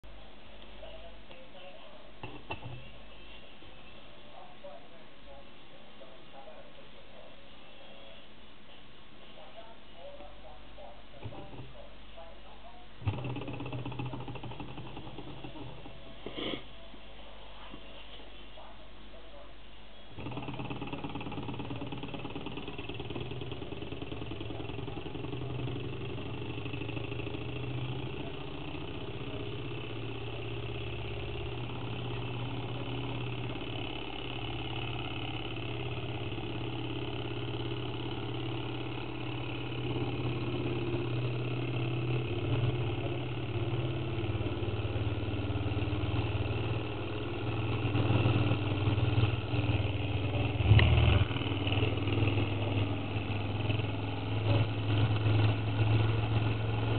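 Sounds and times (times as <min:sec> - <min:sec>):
model engine running: 0:11.2 - 0:11.8, 0:13.0 - 0:16.1, 0:20.1 - 0:56.9.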